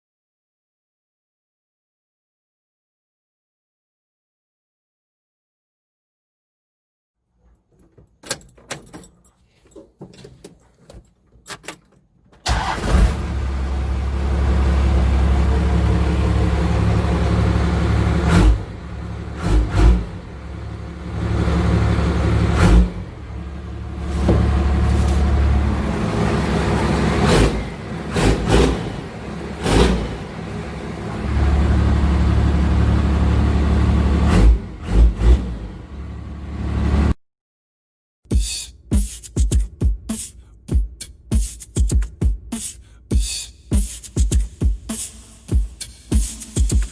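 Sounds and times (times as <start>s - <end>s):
diesel engine starting and revving: 12.4s - 37.2s.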